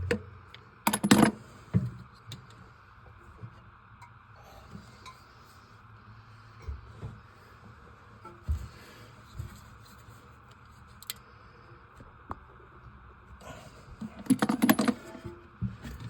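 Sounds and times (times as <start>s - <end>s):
parts clicking and knocking: 0.9s - 1.4s, 14.0s - 15.3s
rattle of clicks: 0.9s - 1.4s, 14.2s - 15.0s.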